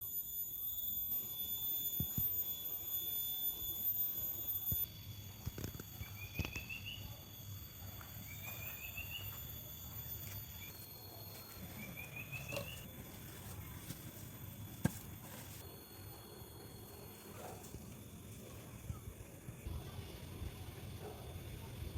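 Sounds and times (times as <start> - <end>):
faint high-pitched ringing: 0.0 - 21.9
small bird singing: 6.0 - 7.3, 8.2 - 14.0.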